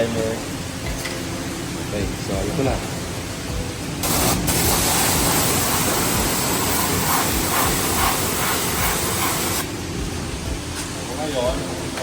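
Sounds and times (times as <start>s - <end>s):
pressure washer spraying water: 4.0s - 9.7s.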